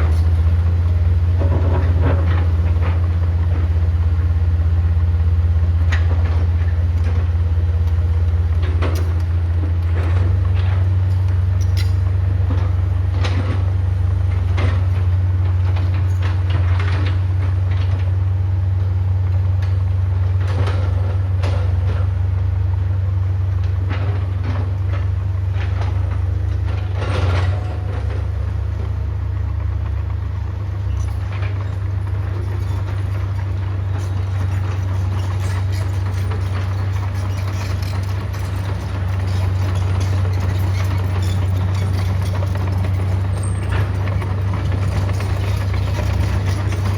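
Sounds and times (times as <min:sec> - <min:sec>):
metal clanks and scrapes: 0:00.0 - 0:03.1, 0:08.6 - 0:13.7, 0:30.7 - 0:46.9
heavy diesel machine running: 0:00.0 - 0:46.9.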